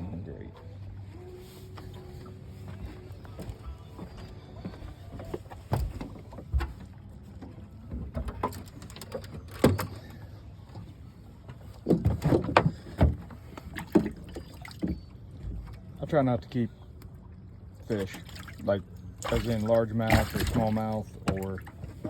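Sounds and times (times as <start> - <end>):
knocks and clunks on boat: 1.6 - 22.0.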